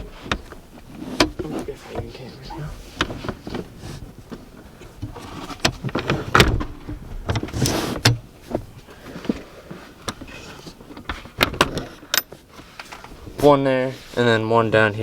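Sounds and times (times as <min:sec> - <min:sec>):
seat sliding rasp: 0:00.0 - 0:06.5, 0:07.3 - 0:11.4
seat rail clicks and knocks: 0:03.0 - 0:09.4.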